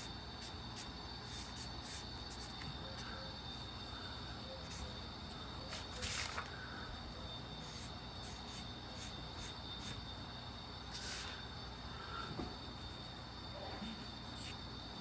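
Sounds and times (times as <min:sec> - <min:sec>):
drawing strokes scratching: 0:00.0 - 0:06.4, 0:07.0 - 0:11.9, 0:12.5 - 0:14.6.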